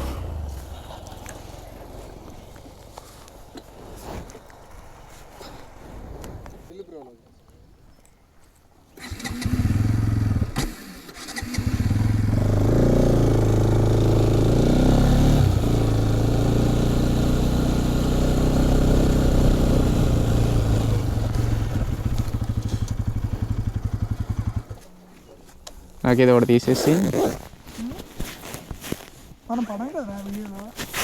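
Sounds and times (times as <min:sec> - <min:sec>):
motorcycle engine starting and revving: 0:00.0 - 0:05.1, 0:09.0 - 0:25.1.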